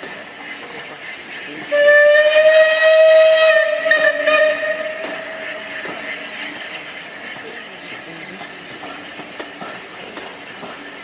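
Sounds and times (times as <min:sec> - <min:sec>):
steam locomotive whistle: 0:01.7 - 0:05.6.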